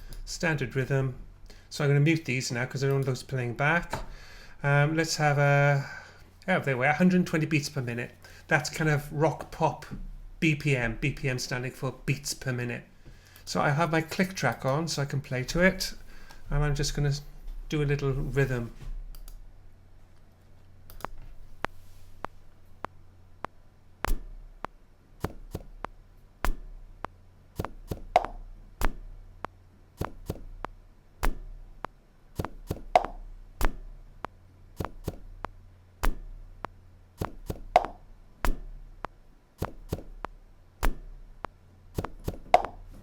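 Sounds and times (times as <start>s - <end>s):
percussive sampled hits: 24.0s - 29.2s, 30.0s - 42.9s.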